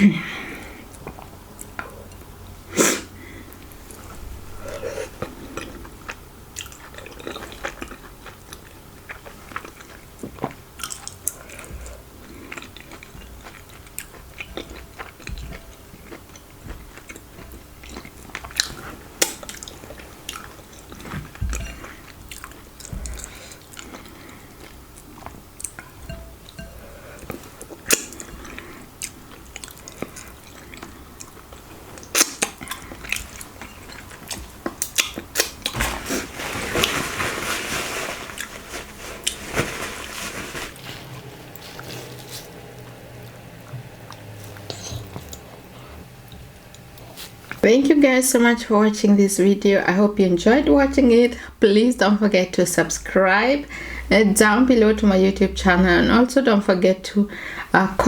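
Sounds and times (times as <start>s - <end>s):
person chewing food: 3.5s - 36.0s, 40.8s - 47.6s.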